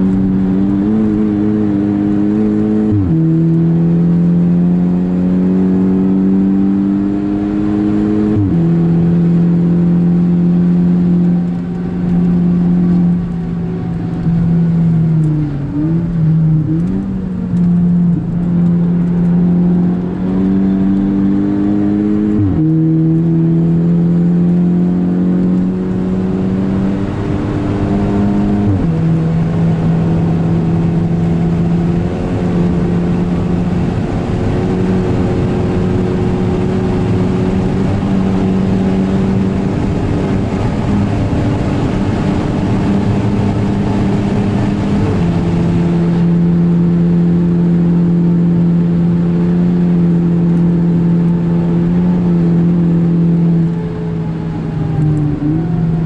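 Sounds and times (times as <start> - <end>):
car engine revving hard: 0.0 - 56.0.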